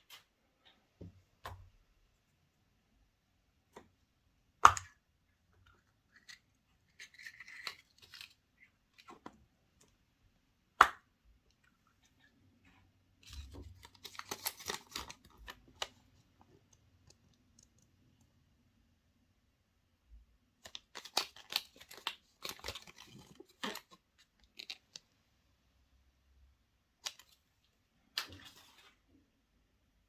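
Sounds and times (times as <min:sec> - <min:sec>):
plastic egg snapping clicks: 0:04.6 - 0:05.0.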